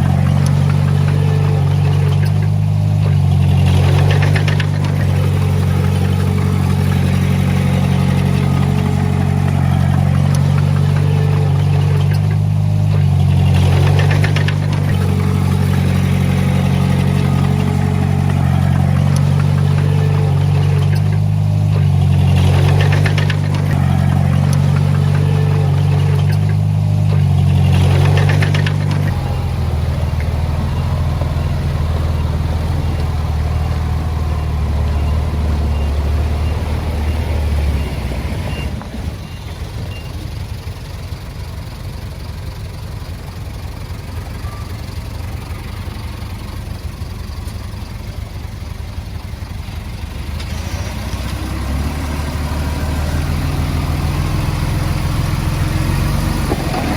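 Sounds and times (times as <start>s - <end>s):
fine regular clatter: 0.0s - 36.3s, 54.5s - 56.9s
heavy diesel engine: 0.0s - 56.9s.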